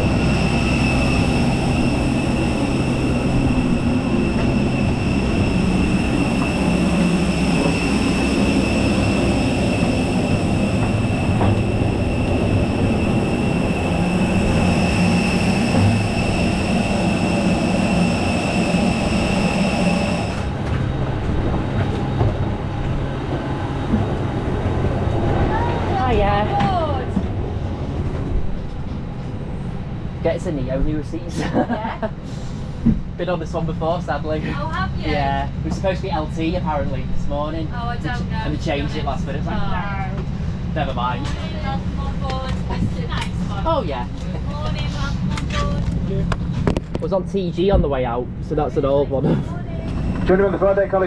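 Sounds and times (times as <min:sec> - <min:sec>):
airliner turbine rumble: 0:00.0 - 0:51.0
high whistling tones: 0:00.1 - 0:20.5.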